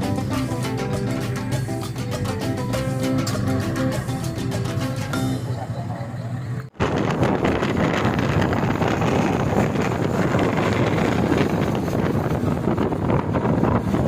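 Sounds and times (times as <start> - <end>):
boat engine running: 0.0 - 14.0
wind on microphone: 6.7 - 14.0.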